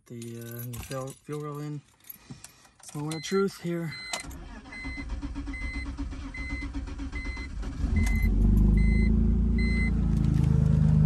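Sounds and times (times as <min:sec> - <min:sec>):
car engine starting and idling: 0:04.2 - 0:11.0.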